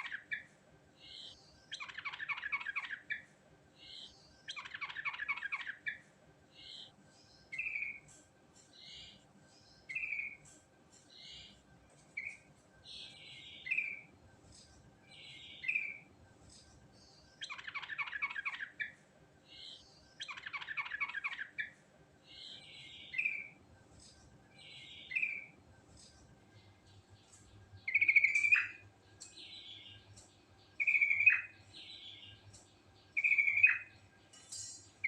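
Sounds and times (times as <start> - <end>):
bird singing bright phrases: 0.0 - 35.0
bird chattering trill: 27.9 - 29.4, 30.8 - 31.6, 33.2 - 33.9.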